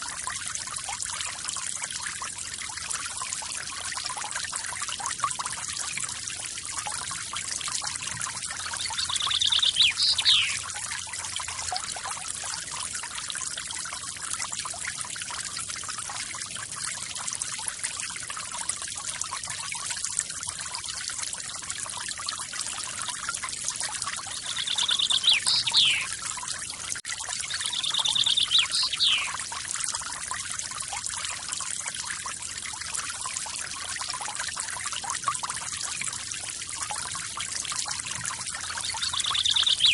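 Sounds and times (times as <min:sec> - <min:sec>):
bird trilling call: 0:08.8 - 0:10.6, 0:24.4 - 0:26.1, 0:27.5 - 0:29.4, 0:38.9 - 0:39.9.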